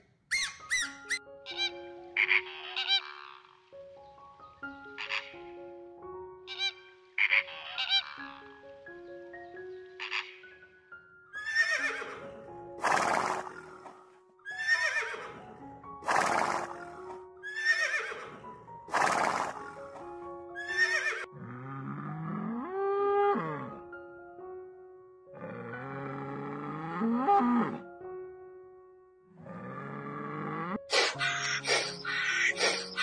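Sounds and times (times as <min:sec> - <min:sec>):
background music: 0:00.0 - 0:33.0
horse neighing: 0:11.4 - 0:13.9, 0:14.5 - 0:15.4, 0:16.0 - 0:19.8, 0:20.6 - 0:23.8, 0:29.5 - 0:33.0
cow mooing: 0:21.1 - 0:23.8, 0:25.4 - 0:27.8, 0:29.4 - 0:30.8.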